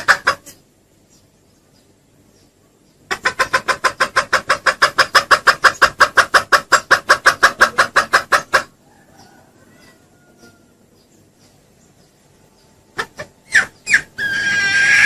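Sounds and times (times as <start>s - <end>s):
junglefowl clucking: 0.0s - 0.6s, 3.0s - 10.8s, 12.9s - 15.0s.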